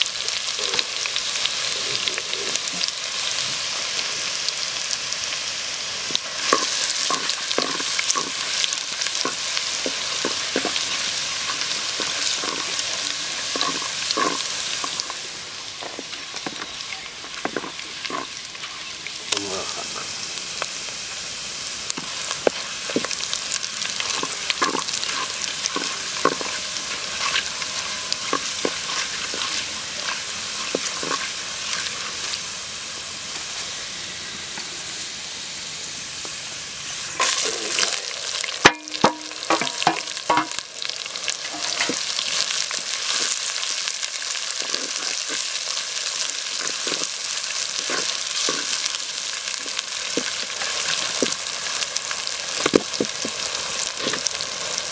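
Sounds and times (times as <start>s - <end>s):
oil sizzling in a pot: 0.0s - 54.9s.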